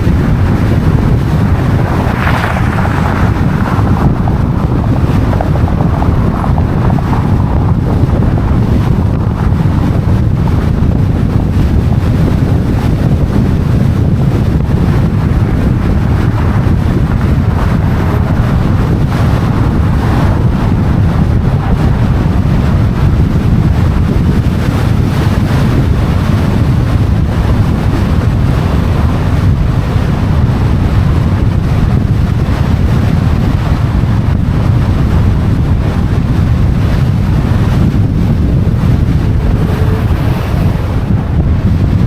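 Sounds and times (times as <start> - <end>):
wind buffeting microphone: 0.0 - 42.0
city street traffic: 12.2 - 32.0, 37.5 - 42.0.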